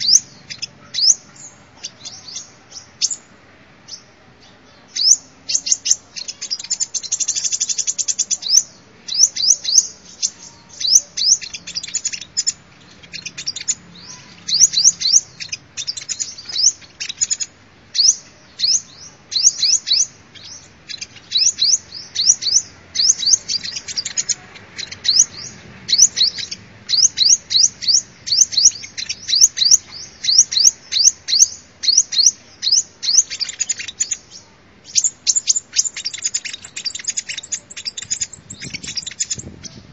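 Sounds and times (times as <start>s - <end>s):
sunbird high sharp chirps: 0.0s - 39.9s.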